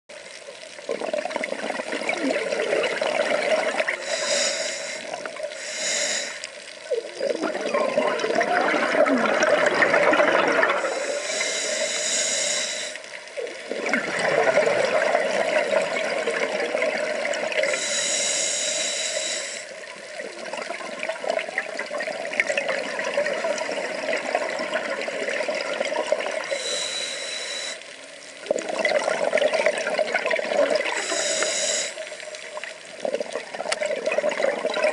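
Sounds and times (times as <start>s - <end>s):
water sloshing and bubbling: 0.1s - 34.9s
hissing water rush: 2.4s - 7.5s, 8.2s - 19.8s, 26.4s - 29.0s, 30.0s - 32.6s.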